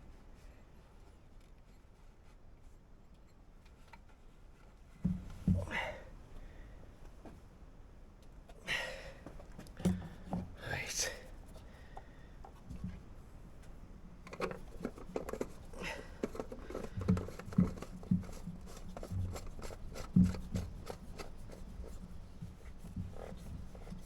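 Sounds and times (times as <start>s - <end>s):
tools clicking and knocking on engine: 14.2s - 21.3s.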